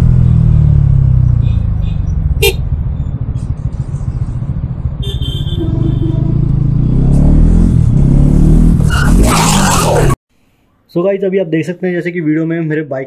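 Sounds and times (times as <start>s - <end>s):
motorcycle engine running: 0.0s - 7.0s.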